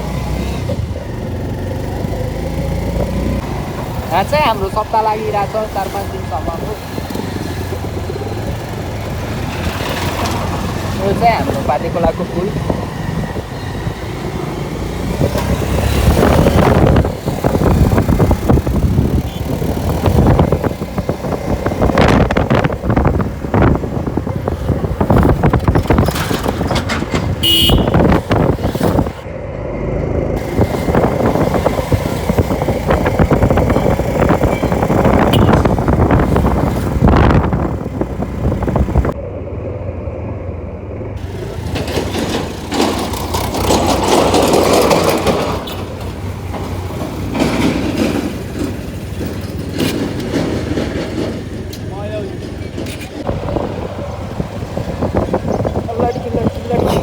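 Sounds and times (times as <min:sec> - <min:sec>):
road noise: 0:00.0 - 0:57.0
motorcycle engine running: 0:27.4 - 0:29.1, 0:29.7 - 0:39.2.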